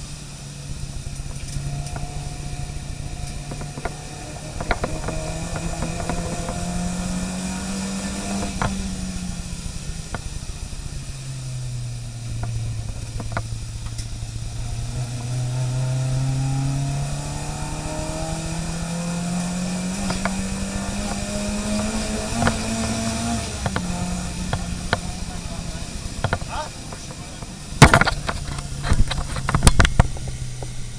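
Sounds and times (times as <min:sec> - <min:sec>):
car engine running: 0:00.0 - 0:30.9
light clicks and knocks: 0:19.8 - 0:30.8.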